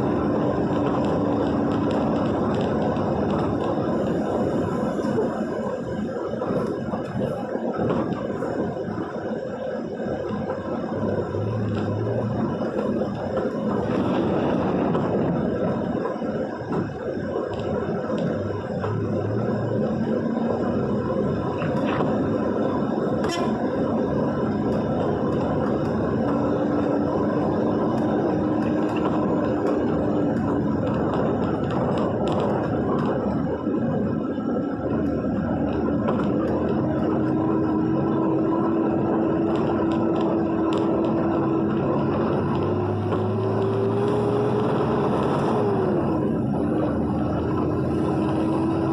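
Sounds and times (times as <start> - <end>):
road and engine noise: 0.0 - 48.9
vehicle driving through rain: 0.0 - 48.9
light rain ticks: 38.0 - 45.6.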